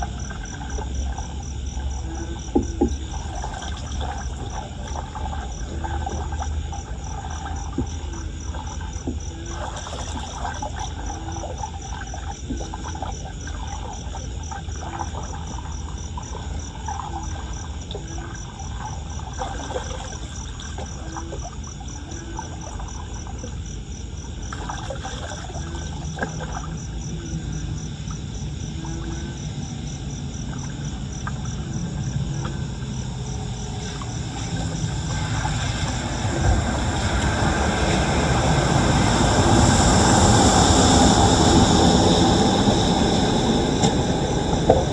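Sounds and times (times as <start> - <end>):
insect chirping: 0.0 - 44.9
running floodwater: 0.0 - 44.9
broad rumble: 25.6 - 44.9.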